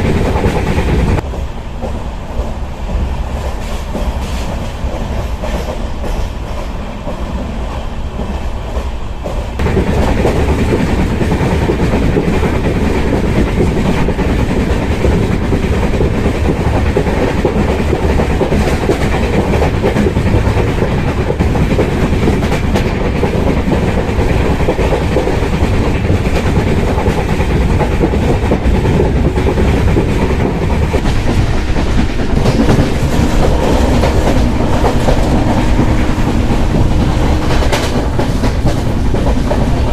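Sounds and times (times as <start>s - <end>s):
train rumble: 0.0s - 39.9s
wheels clacking over rail joints: 8.3s - 39.9s.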